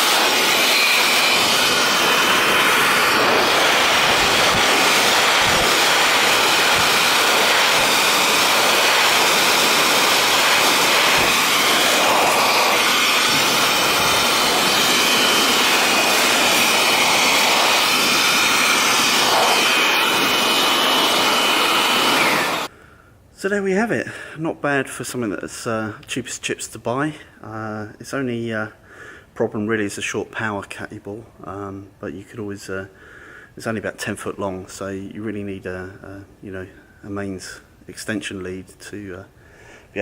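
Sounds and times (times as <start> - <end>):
electric blower with high whine: 0.0 - 22.7.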